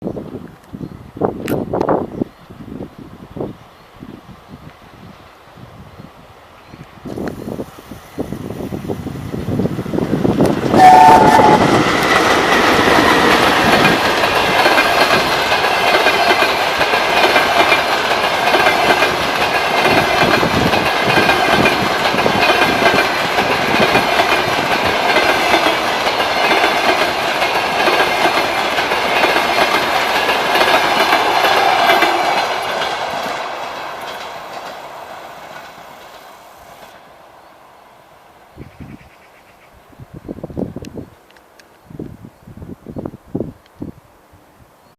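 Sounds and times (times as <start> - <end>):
train wheels rumbling on rails: 5.7 - 37.4
two-tone train horn: 10.7 - 12.5.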